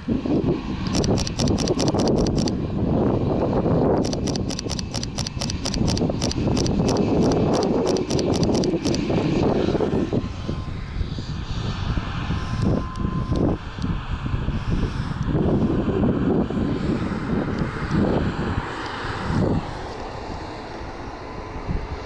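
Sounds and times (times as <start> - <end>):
aircraft engines rumbling: 0.0 - 22.0
camera shutter clicks: 0.8 - 2.6, 4.0 - 9.0.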